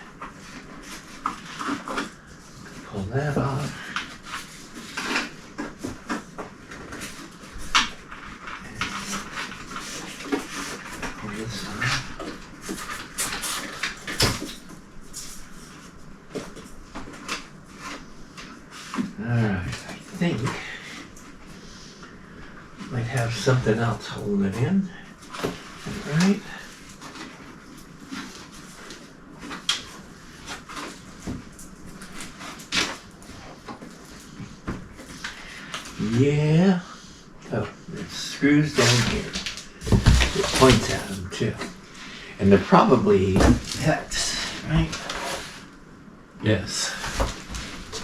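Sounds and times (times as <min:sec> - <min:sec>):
packing pieces rustling and clicking: 0:03.6 - 0:15.4, 0:38.8 - 0:41.2.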